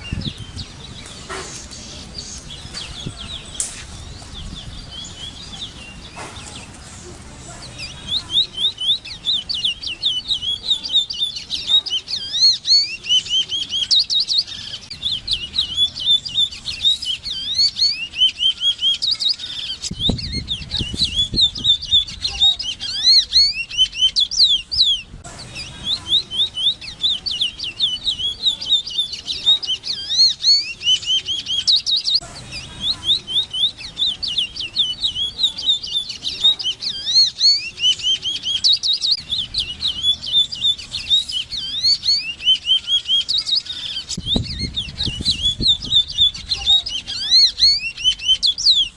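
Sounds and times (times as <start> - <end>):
finch singing high sliding whistles: 25.9 - 48.9.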